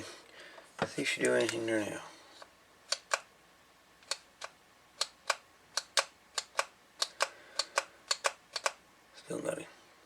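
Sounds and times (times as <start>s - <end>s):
plastic switch clicks: 4.0s - 8.8s.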